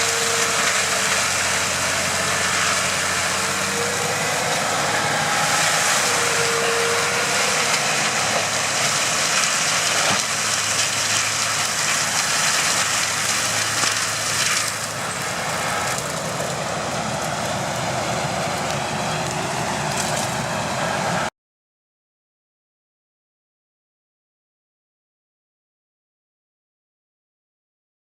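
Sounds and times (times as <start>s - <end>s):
forestry machine engine drone: 0.0s - 21.3s
wood grinding hiss: 0.0s - 21.3s.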